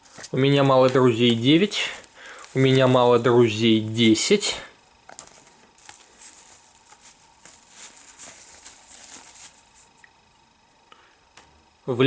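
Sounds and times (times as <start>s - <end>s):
packaging rustling and clicking: 0.0s - 3.3s, 5.0s - 10.0s.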